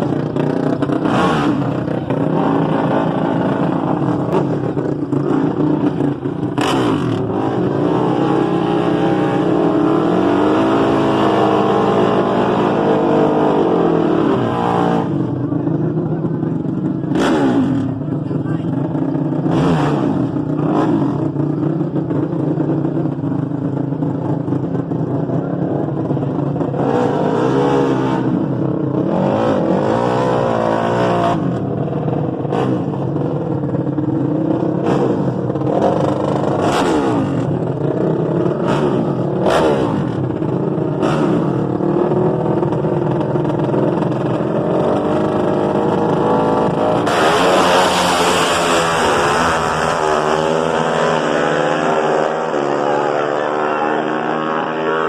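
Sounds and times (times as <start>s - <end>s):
dirt bike engines revving: 0.0s - 55.0s.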